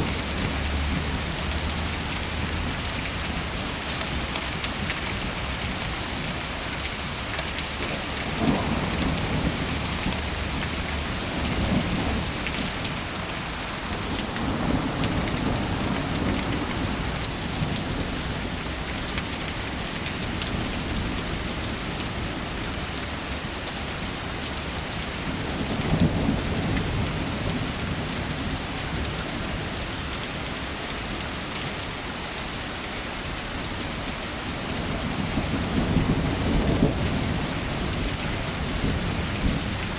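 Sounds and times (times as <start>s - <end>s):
heavy rain falling: 0.0s - 39.9s
thunder rumbling: 8.2s - 13.1s, 34.8s - 39.9s.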